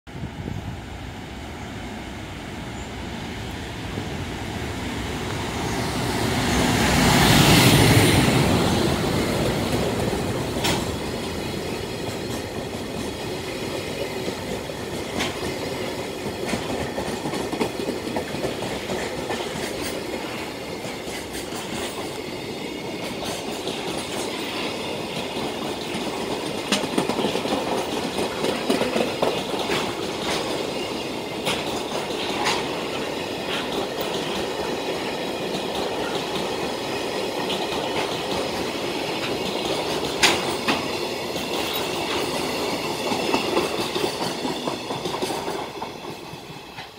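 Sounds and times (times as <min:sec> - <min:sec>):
electric locomotive passing: 0:00.1 - 0:46.9
wagon wheels clicking over rail joints: 0:25.2 - 0:30.8, 0:37.2 - 0:46.9.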